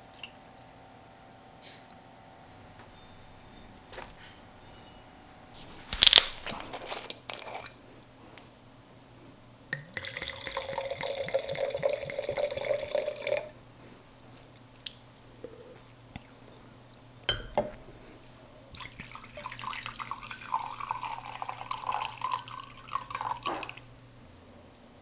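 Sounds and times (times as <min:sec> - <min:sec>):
liquid pouring: 0:09.8 - 0:13.6, 0:18.7 - 0:23.9.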